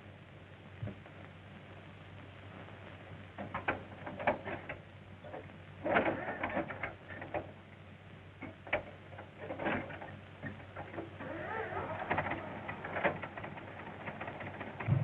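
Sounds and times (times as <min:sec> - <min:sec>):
engine hand crank clanking: 0:11.3 - 0:12.4.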